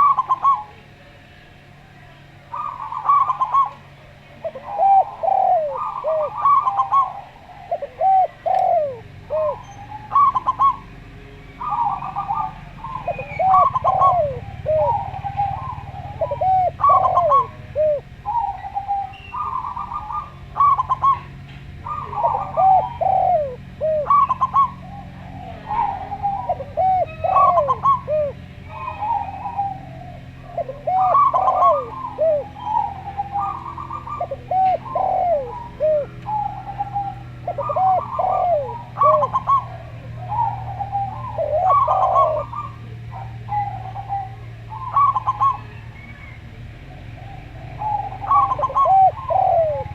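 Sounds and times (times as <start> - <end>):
doves cooing: 0.0 - 49.9.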